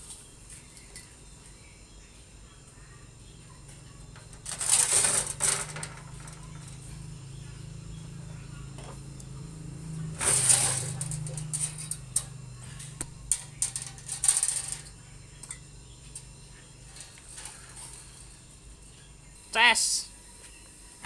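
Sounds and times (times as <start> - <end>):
steady low hum: 0.0 - 21.0
metal clicks and rattles: 4.2 - 6.8, 10.2 - 12.4, 13.0 - 15.6.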